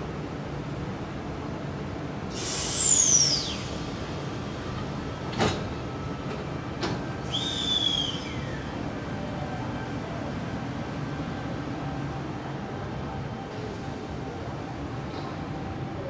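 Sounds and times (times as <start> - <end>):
electric train rumbling: 0.0 - 16.0
high squeal: 2.4 - 4.0, 7.2 - 8.8
train clanks: 4.0 - 9.8, 15.0 - 15.8.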